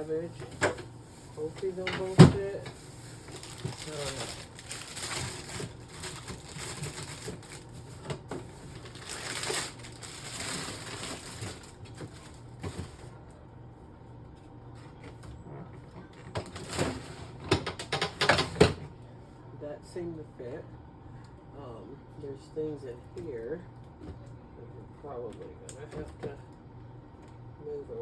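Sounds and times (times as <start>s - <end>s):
plastic bags rustling: 0.1s - 13.1s, 16.2s - 17.2s
items knocking on fridge shelves: 1.8s - 13.0s.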